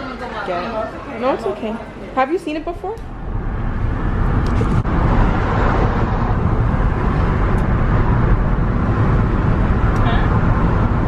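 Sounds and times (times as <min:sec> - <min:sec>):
car engine and road noise: 0:03.0 - 0:11.0.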